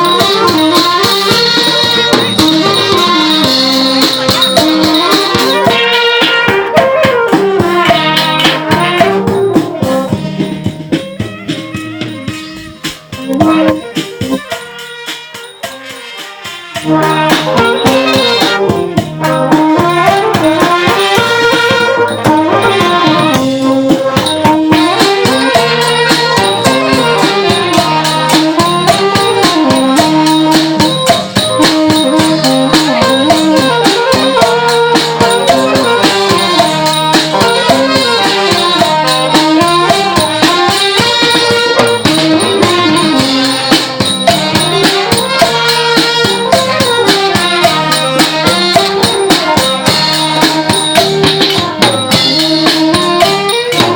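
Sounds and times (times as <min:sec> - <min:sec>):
brass band playing: 0:00.0 - 0:53.9
fast percussion: 0:00.0 - 0:53.9.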